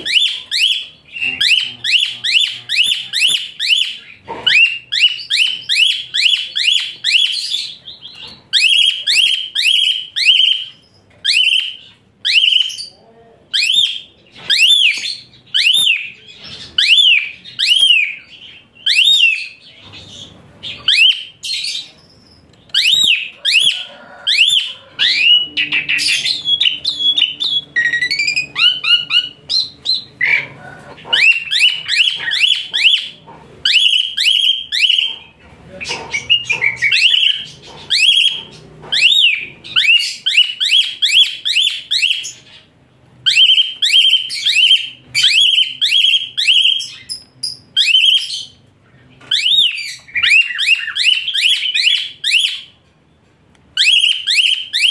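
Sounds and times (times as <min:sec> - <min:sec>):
starling singing shrill notes: 0:13.6 - 0:48.6.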